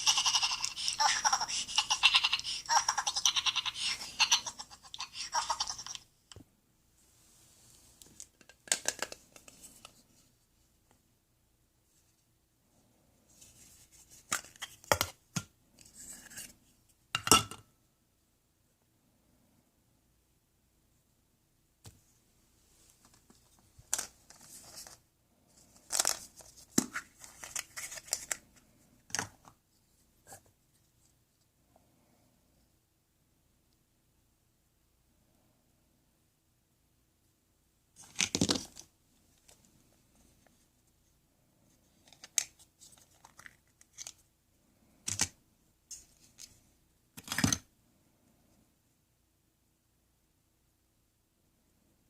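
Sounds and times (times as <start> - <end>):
crinkling: 22.8 - 29.2.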